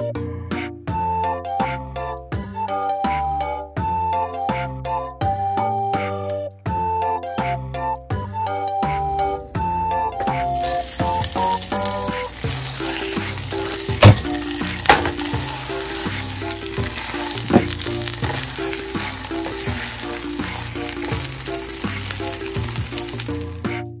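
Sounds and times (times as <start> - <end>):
background music: 0.0 - 24.0
pancake sizzling in oil: 10.2 - 23.8
spatula knocking against pan: 13.9 - 15.7.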